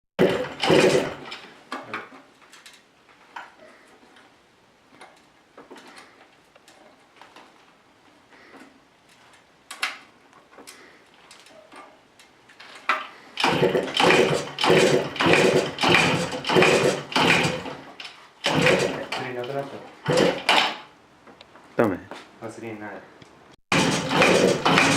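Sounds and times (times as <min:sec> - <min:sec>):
small engine running unevenly: 0:00.2 - 0:01.4, 0:13.4 - 0:20.8, 0:23.7 - 0:24.9.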